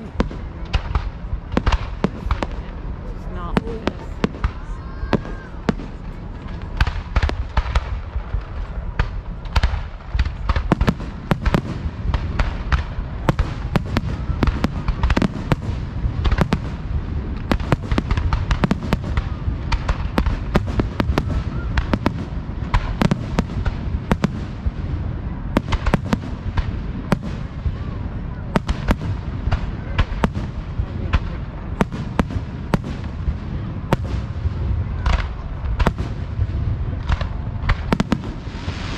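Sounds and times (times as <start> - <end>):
faint firework whistle: 20.9 - 22.3.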